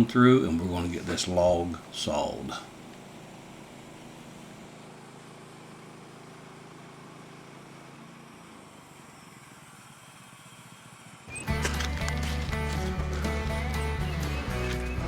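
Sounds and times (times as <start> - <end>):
faint sawmill engine running: 0.0 - 15.0.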